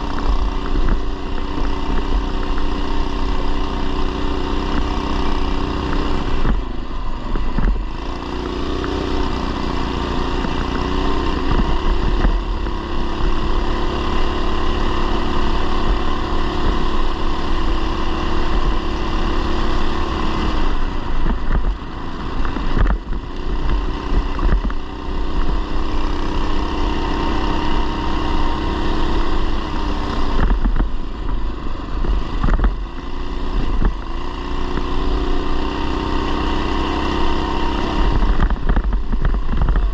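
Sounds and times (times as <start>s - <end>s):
small motorbike engine running: 0.0s - 39.9s
wind rumble on microphone: 5.6s - 8.1s, 20.6s - 26.0s, 30.1s - 35.6s, 37.1s - 39.9s.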